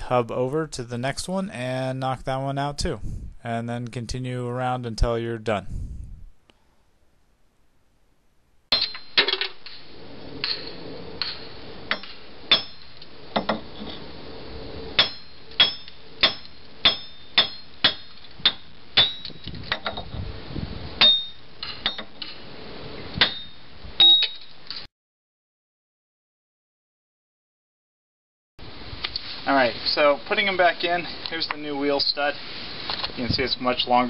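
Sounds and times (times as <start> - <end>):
hammer striking metal: 8.7 - 9.4, 10.4 - 13.7, 15.0 - 20.0, 21.0 - 22.2, 23.2 - 23.6.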